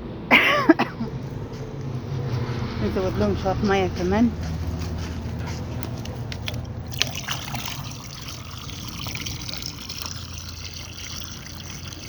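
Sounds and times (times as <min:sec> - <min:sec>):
water trickling and splashing: 0:02.8 - 0:12.0.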